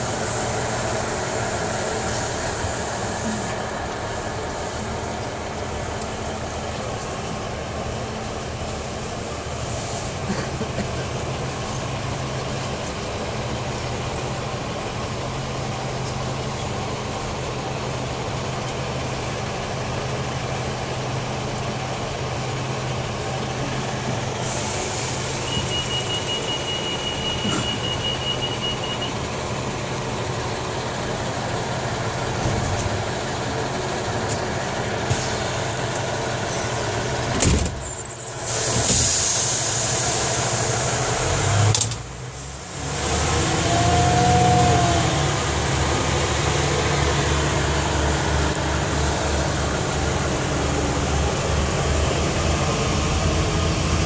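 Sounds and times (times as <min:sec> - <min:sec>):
train engine hum and rumble: 0:00.0 - 0:54.0
burst of hiss: 0:24.4 - 0:26.2, 0:38.3 - 0:41.2.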